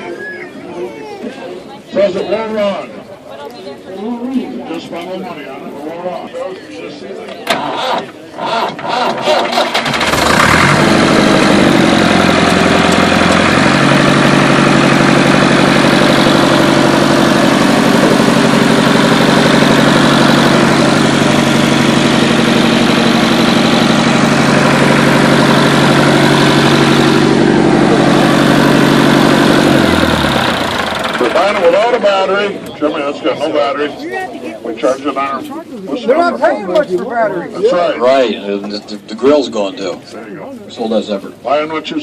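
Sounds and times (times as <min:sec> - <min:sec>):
tractor engine idling: 0:07.5 - 0:33.8.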